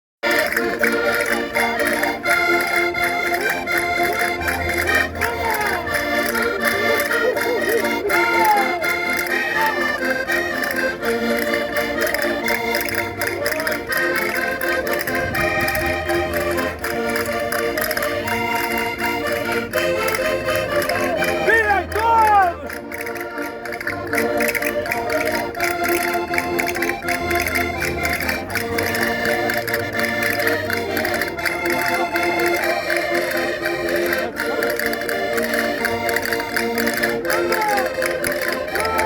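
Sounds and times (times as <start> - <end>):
concertinas playing folk dance tune: 0.2 - 39.0.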